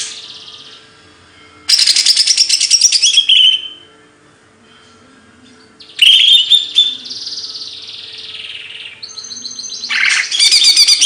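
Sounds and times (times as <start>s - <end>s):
songbird singing: 1.7s - 3.9s, 5.5s - 11.0s.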